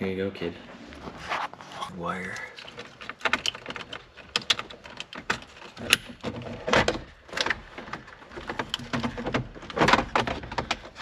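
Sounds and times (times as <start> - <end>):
hands clicking and tapping on parts: 2.6 - 11.0.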